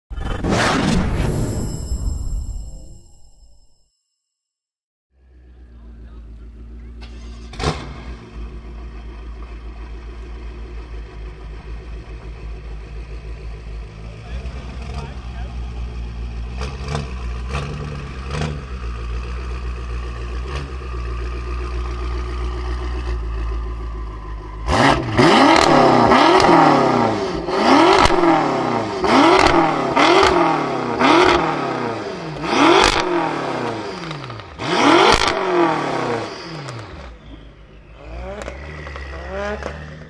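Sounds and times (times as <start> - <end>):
car engine idling: 5.2 - 7.6, 8.2 - 25.3
engine revving sharply: 24.6 - 40.0.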